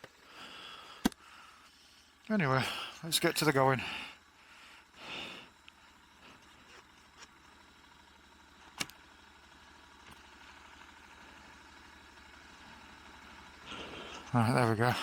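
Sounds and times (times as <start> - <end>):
motorcycle engine idling: 0.0 - 15.0
sharp click: 8.8 - 9.0.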